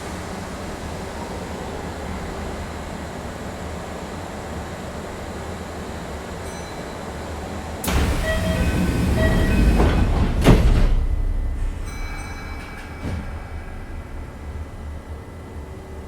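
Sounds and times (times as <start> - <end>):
electric train rumbling: 7.4 - 16.0
loud rush of noise: 7.9 - 16.0.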